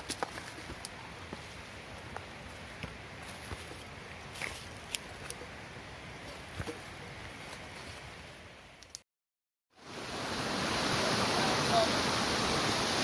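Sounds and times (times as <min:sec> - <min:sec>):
outdoor hiss: 0:09.8 - 0:13.0
waterfall rushing: 0:09.8 - 0:13.0.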